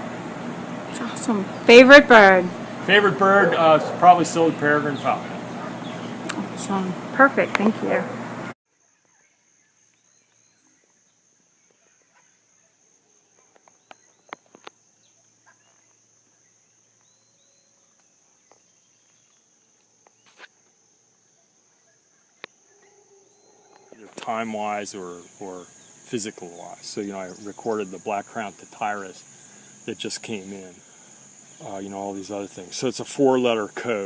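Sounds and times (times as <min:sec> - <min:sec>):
distant bird chirps: 0:00.0 - 0:20.7, 0:21.3 - 0:33.2
high-pitched insect trill: 0:08.8 - 0:34.0.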